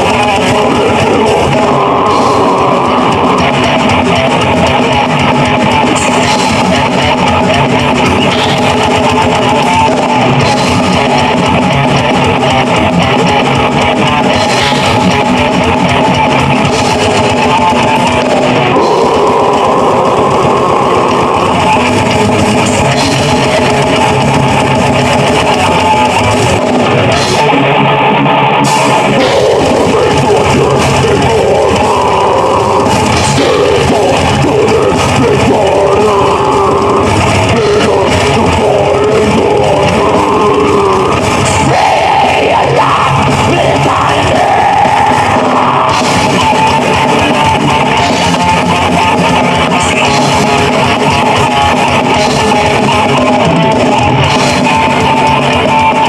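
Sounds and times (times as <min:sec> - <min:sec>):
metal band playing: 0:00.0 - 0:56.0.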